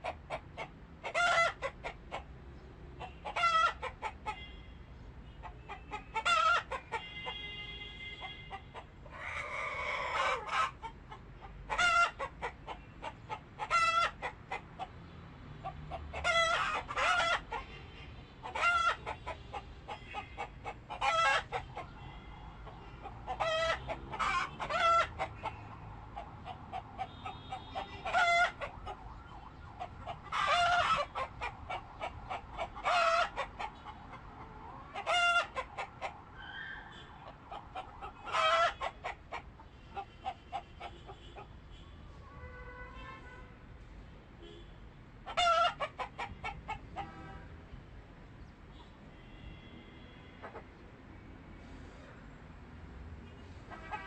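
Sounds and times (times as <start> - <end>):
chickens clucking: 0.0 - 2.4, 3.0 - 4.4, 5.4 - 7.1, 8.5 - 17.7, 18.4 - 36.2, 36.9 - 41.5, 45.2 - 47.2, 50.4 - 50.7.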